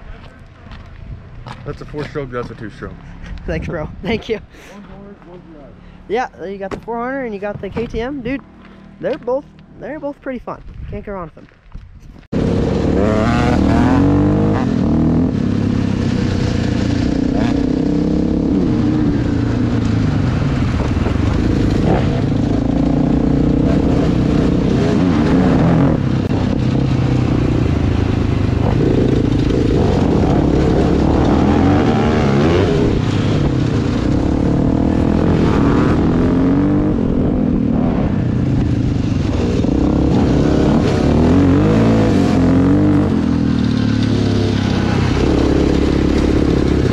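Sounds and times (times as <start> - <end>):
dirt bike engine revving: 12.4 - 46.9.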